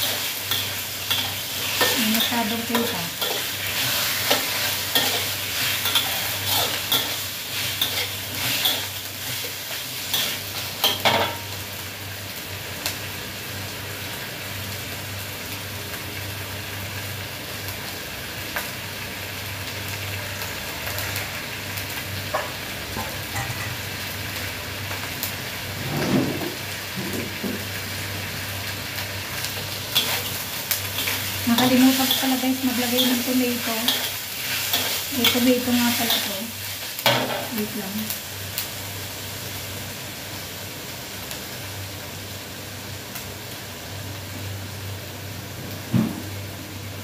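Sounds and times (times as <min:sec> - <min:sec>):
chicken sizzling in a wok: 0:00.0 - 0:47.0
metal spatula scraping a wok: 0:00.1 - 0:09.5, 0:29.9 - 0:30.4.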